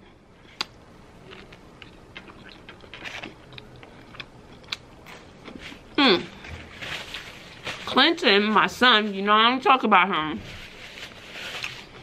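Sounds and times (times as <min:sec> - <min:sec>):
chewing crunchy food: 0:00.4 - 0:06.0.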